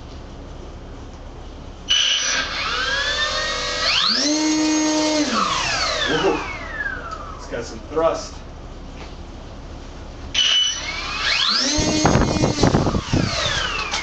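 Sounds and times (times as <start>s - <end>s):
electric motor propeller whine: 1.9s - 7.6s, 10.3s - 14.0s.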